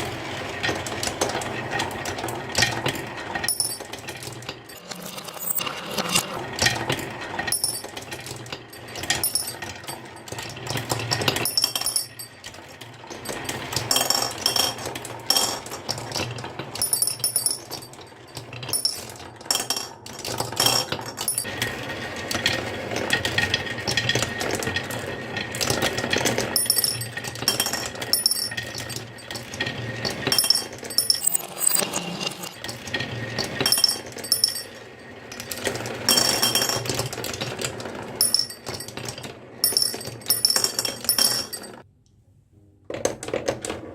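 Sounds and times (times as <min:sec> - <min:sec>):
marbles rolling on wooden track: 0:00.0 - 0:41.8
marbles clicking and clinking: 0:03.5 - 0:06.3, 0:16.8 - 0:21.5, 0:26.5 - 0:41.8.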